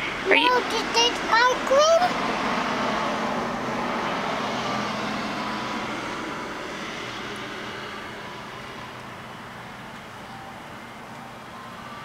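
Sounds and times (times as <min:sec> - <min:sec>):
road noise: 0:00.0 - 0:12.0
vehicle engine passing: 0:00.0 - 0:12.0.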